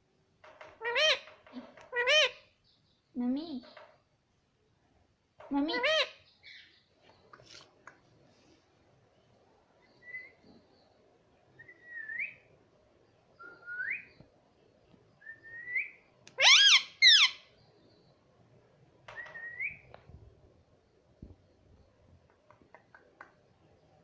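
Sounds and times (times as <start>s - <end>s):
rising whistles: 13.4s - 14.2s, 15.2s - 16.0s.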